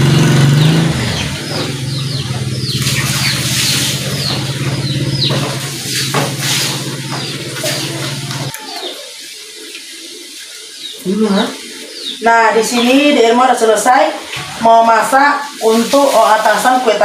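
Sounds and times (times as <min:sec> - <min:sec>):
low mechanical hum: 0:00.0 - 0:09.7
bird chirping: 0:00.0 - 0:14.0.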